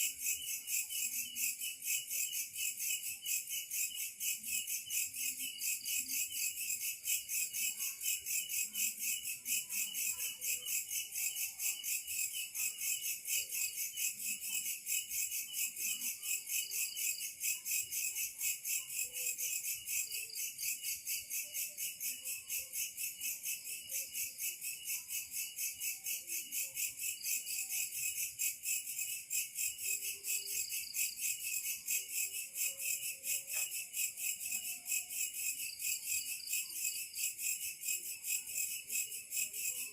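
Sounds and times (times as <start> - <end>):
insect chorus chirping: 11.7 - 39.9.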